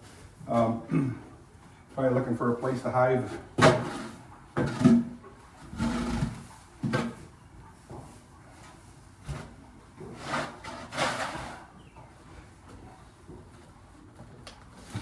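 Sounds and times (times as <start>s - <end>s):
scrapes and knocks: 3.2s - 7.3s, 7.9s - 12.0s.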